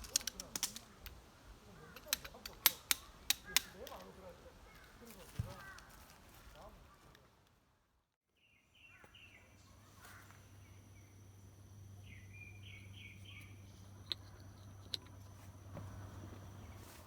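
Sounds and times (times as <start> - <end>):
sharp clicks: 0.0 - 1.2, 2.0 - 4.1
bird chirping: 8.4 - 16.9
steady low hum: 9.0 - 17.0.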